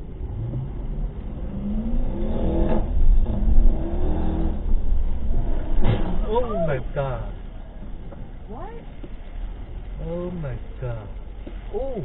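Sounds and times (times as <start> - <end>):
car engine accelerating: 0.0 - 8.7
low road rumble: 0.0 - 12.0.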